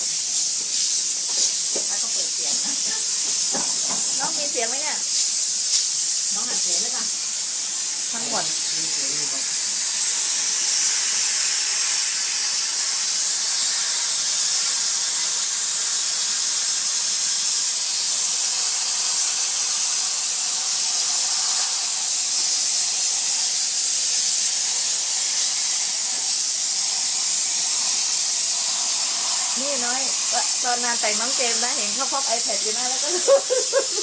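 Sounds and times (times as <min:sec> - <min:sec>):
sprayer high hiss: 0:00.0 - 0:34.0.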